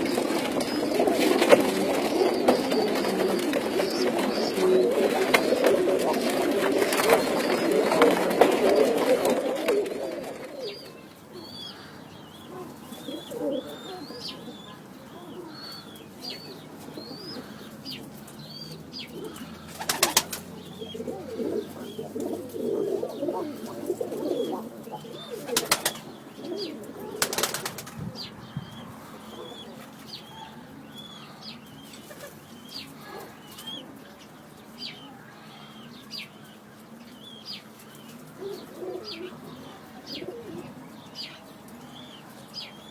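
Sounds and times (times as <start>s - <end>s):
wings flapping: 0.0s - 11.0s, 19.2s - 28.2s
pigeons cooing: 0.0s - 42.9s.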